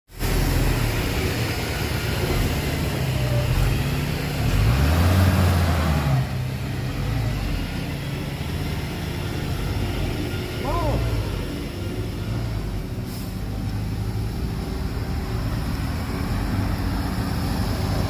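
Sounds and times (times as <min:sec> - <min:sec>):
heavy diesel engine revving: 0:00.1 - 0:18.0.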